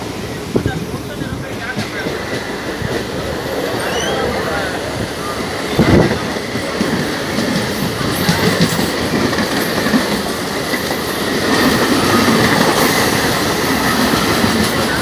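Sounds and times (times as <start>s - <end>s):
electric train running on track: 0.0s - 15.0s.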